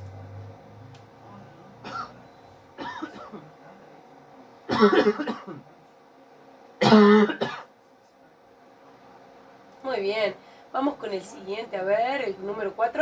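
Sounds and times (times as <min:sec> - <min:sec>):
person coughing: 0:01.8 - 0:02.2, 0:02.8 - 0:03.5, 0:04.7 - 0:05.6, 0:06.8 - 0:07.7.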